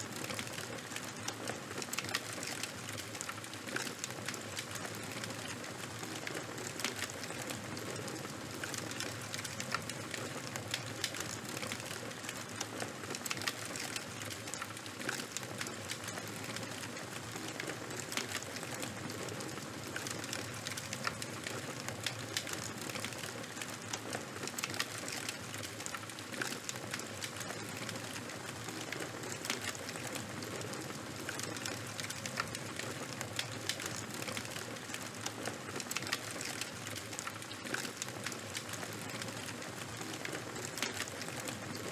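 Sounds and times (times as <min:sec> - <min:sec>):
campfire crackling: 0:00.0 - 0:41.9.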